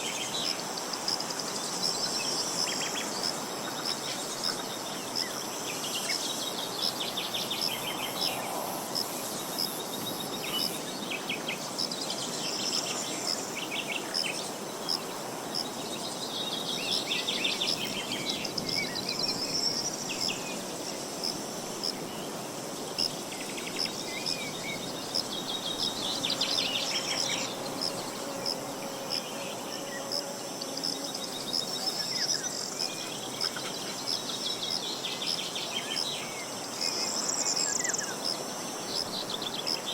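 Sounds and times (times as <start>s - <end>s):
songbirds singing: 23.1s - 39.9s.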